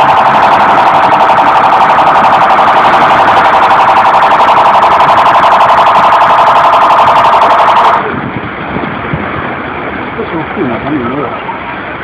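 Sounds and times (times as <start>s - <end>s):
car alarm pulsing tone: 0.0s - 8.1s.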